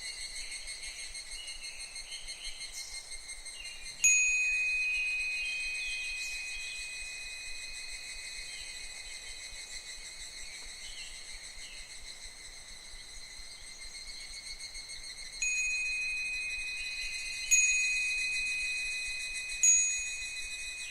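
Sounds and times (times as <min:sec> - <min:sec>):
cicadas chirping: 0:00.0 - 0:20.9
wind chime ringing: 0:04.0 - 0:09.2, 0:15.4 - 0:20.9.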